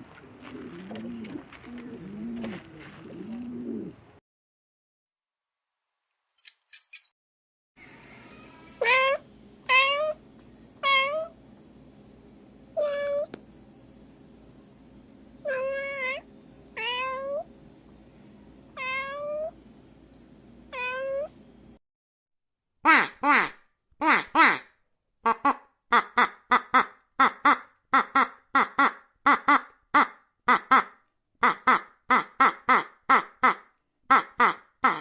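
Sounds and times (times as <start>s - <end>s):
steady background hum: 7.8s - 21.8s
cat meowing: 8.4s - 10.2s, 10.8s - 11.3s, 12.8s - 13.3s, 15.4s - 16.2s, 16.8s - 17.5s, 18.8s - 19.5s, 20.7s - 21.3s
cat chirps: 8.8s - 10.2s, 20.7s - 21.3s.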